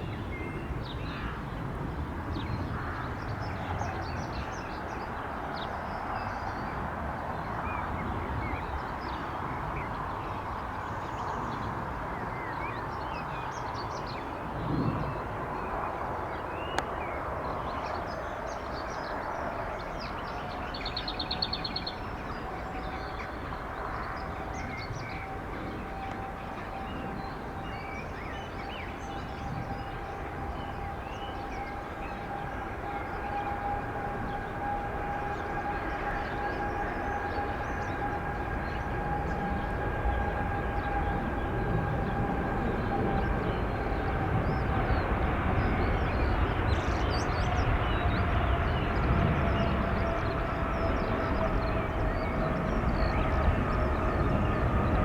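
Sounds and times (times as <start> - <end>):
jet engines at takeoff thrust: 0.0 - 55.0
high fan whines: 20.7 - 55.0.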